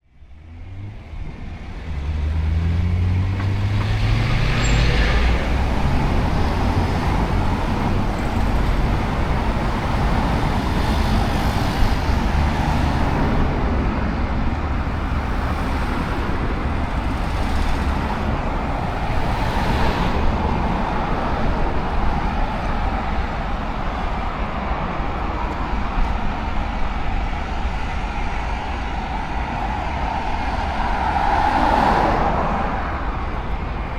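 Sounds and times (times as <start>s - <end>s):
road traffic: 0.0s - 33.9s
vehicle engine accelerating: 0.4s - 9.9s
cars whooshing past: 0.5s - 33.9s.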